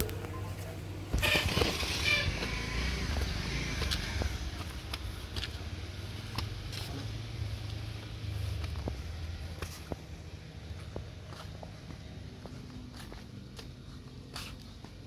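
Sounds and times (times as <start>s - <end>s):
car engine running: 0.0s - 13.7s
road rumble: 0.0s - 15.0s
loud rustling: 1.1s - 4.2s.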